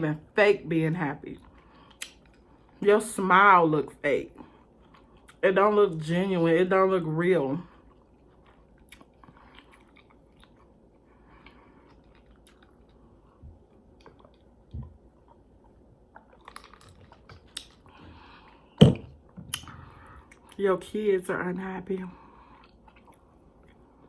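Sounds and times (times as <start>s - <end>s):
person chewing food: 1.4s - 2.8s, 4.5s - 5.4s, 7.7s - 20.6s, 22.3s - 24.0s.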